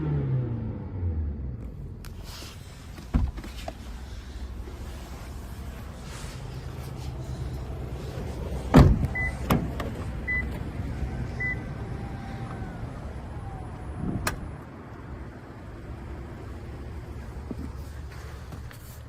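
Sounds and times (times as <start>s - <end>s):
heavy thump: 8.7s - 9.7s.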